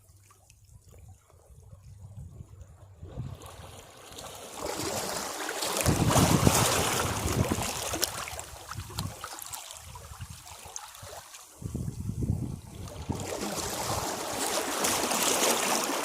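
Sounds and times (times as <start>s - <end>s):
sea wave breaking against rocks: 3.3s - 8.3s, 13.0s - 16.0s.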